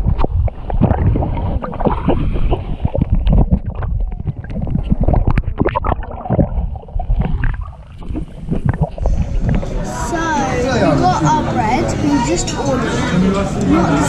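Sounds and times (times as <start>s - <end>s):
wind buffeting microphone: 0.0s - 10.7s
seawater splashing: 0.0s - 10.9s.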